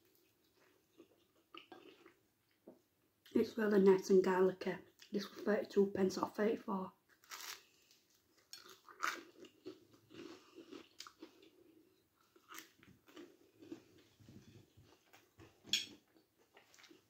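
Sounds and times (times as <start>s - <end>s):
person chewing crusty bread: 0.0s - 2.6s, 7.1s - 17.0s.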